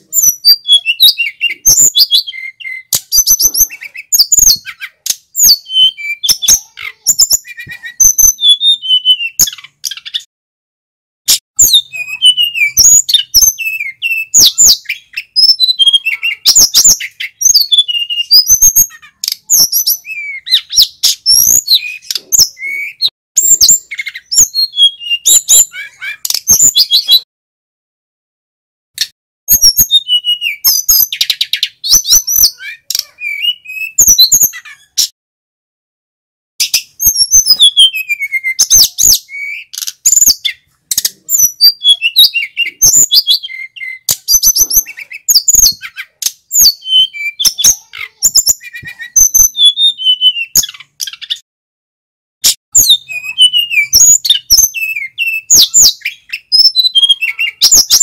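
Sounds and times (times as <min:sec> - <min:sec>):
flycatcher singing: 0:11.6 - 0:27.2, 0:52.8 - 0:58.0.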